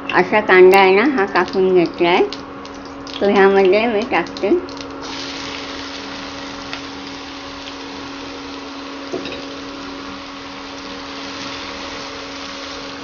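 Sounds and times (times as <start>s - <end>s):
induction cooktop hum: 0.0s - 13.0s
spring onions sizzling in hot oil: 5.0s - 13.0s.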